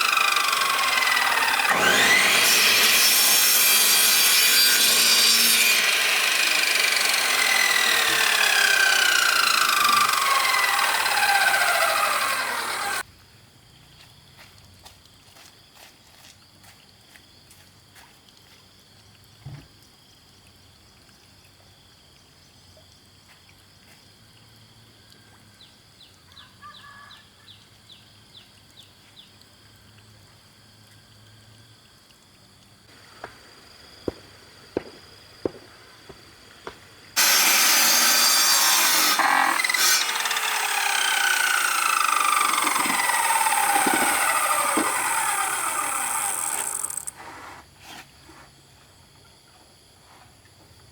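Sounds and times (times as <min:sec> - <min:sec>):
saw cutting through bamboo: 0:00.0 - 0:13.0, 0:37.2 - 0:47.3.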